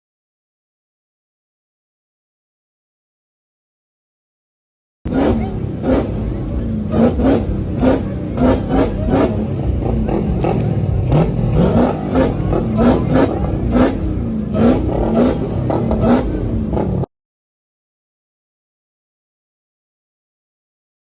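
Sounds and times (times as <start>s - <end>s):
car engine revving in blips: 5.1s - 17.1s.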